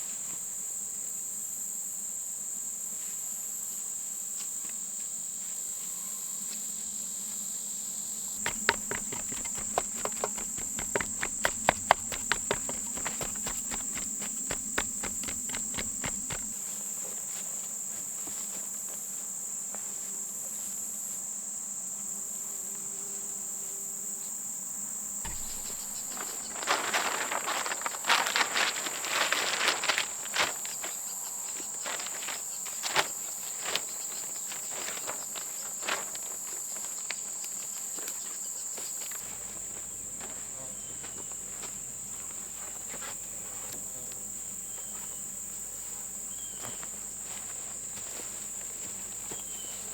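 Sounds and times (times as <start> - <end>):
insects chirping: 8.2 - 16.6, 24.9 - 49.9
rustling: 8.4 - 16.6, 25.2 - 31.0.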